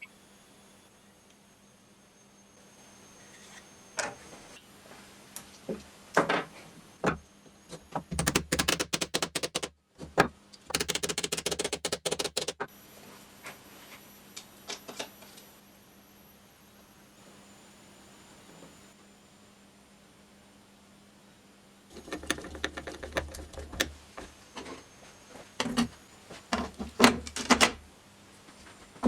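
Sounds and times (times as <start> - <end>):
knocks: 8.2 - 9.7, 10.8 - 12.6
sharp mechanical clicking: 8.2 - 9.7, 10.7 - 12.6.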